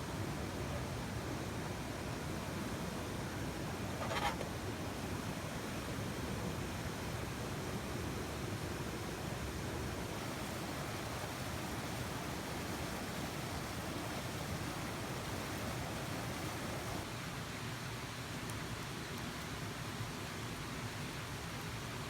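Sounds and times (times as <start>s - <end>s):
stream rushing: 9.9s - 17.1s.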